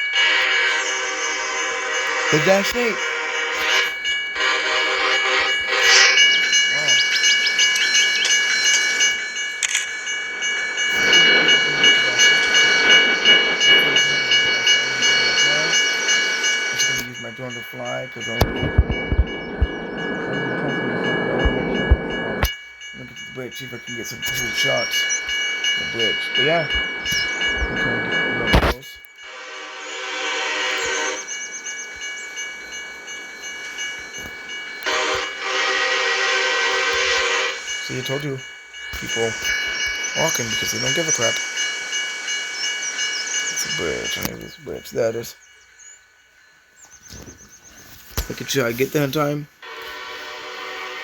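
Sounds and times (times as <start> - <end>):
locomotive horn chord: 0.0 - 7.0, 29.3 - 31.4, 34.8 - 38.4, 49.6 - 51.0
freight train passing: 0.0 - 51.0
level crossing warning bell: 0.0 - 51.0.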